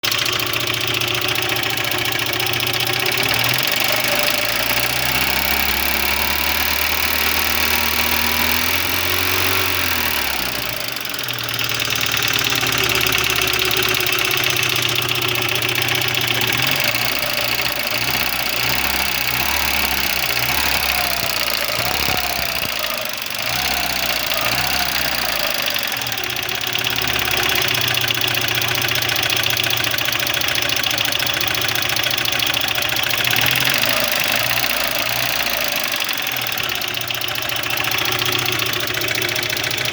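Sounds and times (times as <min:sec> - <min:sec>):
car engine idling and revving: 0:00.0 - 0:39.9
engine knock: 0:00.0 - 0:39.9.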